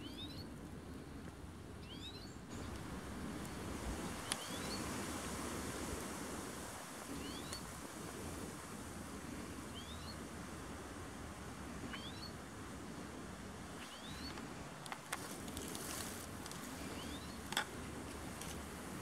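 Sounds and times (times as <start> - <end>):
bird chirping: 0.0 - 0.5, 1.8 - 2.7, 4.2 - 4.8, 9.8 - 10.2, 11.9 - 12.4, 13.8 - 14.4, 16.8 - 17.5
outdoor background hiss: 0.0 - 19.0.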